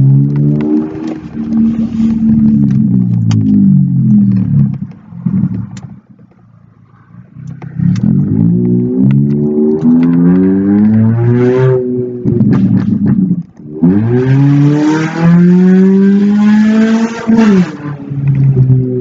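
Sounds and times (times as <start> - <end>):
loud car exhaust: 0.0 - 5.9.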